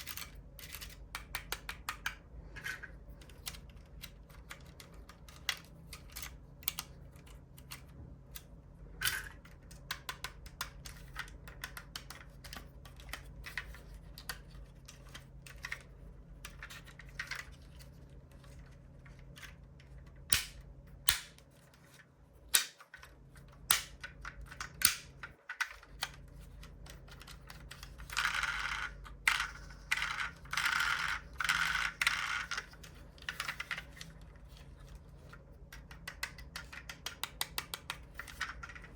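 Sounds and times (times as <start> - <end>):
model cars clicking and tapping: 35.7 - 38.9.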